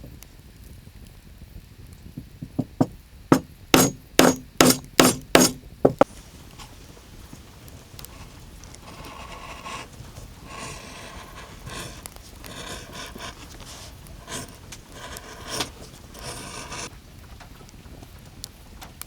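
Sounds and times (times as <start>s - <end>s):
scratchy rubbing strokes: 3.3s - 6.3s, 8.0s - 16.9s.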